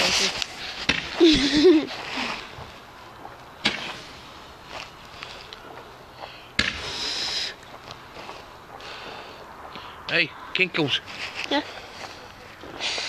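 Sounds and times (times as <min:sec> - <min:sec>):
firework sharp bangs: 0:03.6 - 0:04.2, 0:06.6 - 0:07.6.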